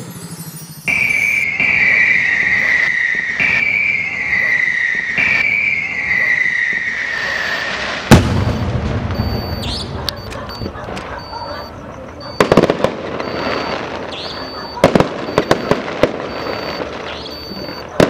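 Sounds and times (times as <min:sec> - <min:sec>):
firework crackling: 0:00.0 - 0:09.9, 0:12.0 - 0:18.0
firework whistles sliding down: 0:00.0 - 0:09.9, 0:13.2 - 0:18.0
firework shell bursting bang: 0:08.1 - 0:09.3.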